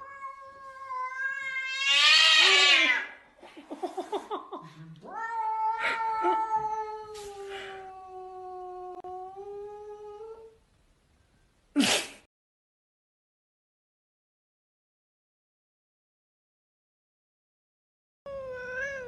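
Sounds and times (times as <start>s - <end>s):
cat chirping and yowling: 0.0s - 3.1s, 5.1s - 9.1s, 18.3s - 19.0s.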